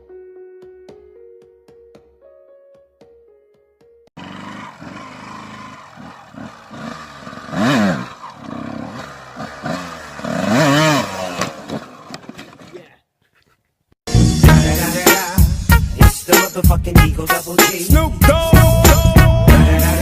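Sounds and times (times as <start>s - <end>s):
motorcycle engine revving: 4.2s - 12.8s.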